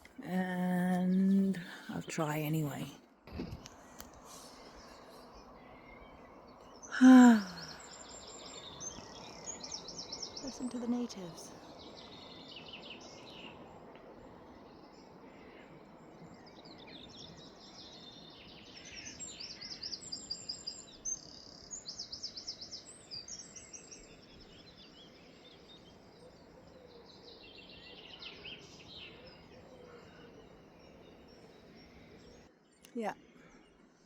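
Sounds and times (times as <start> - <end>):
birds singing: 0.0 - 34.0
outdoor hiss: 1.5 - 6.0.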